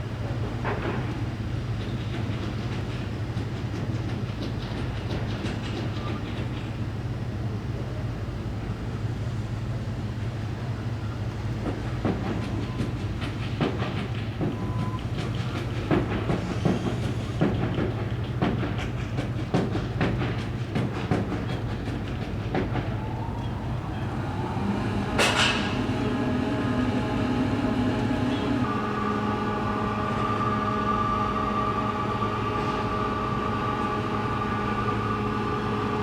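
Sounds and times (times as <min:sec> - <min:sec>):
ferry engine low hum: 0:00.0 - 0:36.0
steady pitched drone: 0:23.4 - 0:36.0.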